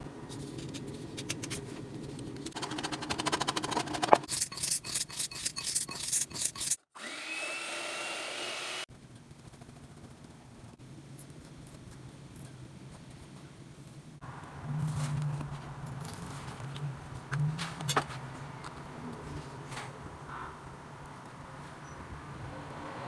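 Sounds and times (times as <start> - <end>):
food handling noise: 0.1 - 6.8, 14.3 - 20.5
scraping strokes: 0.3 - 6.9
kitchen appliance whirring: 2.5 - 8.9.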